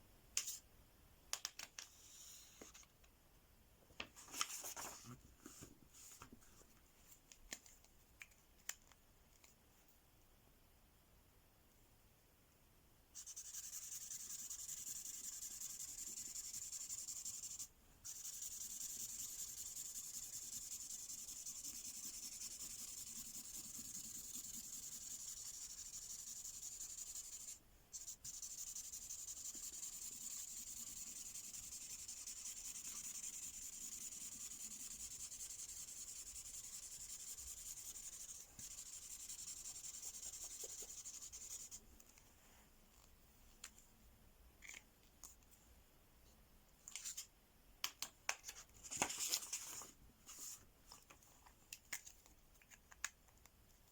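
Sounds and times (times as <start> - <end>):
marker pen scratching on paper: 13.2 - 41.8.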